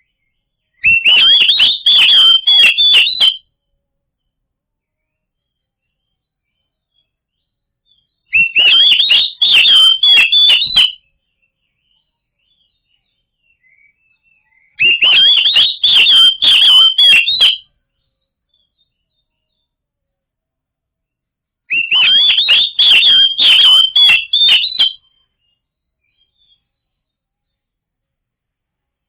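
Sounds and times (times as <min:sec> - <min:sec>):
bird singing whistled chattering notes: 0:00.8 - 0:03.4, 0:08.4 - 0:11.0, 0:14.8 - 0:17.6, 0:21.7 - 0:25.0.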